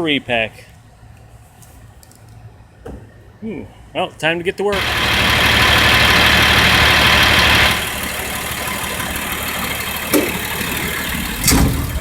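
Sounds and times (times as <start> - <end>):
diesel engine rumbling: 4.7 - 12.0.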